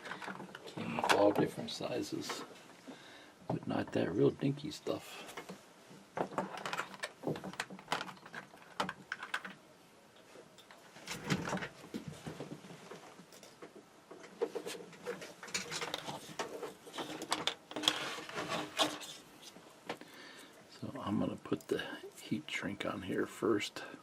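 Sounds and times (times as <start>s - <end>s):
hands handling small parts: 6.2s - 9.6s, 14.4s - 20.1s.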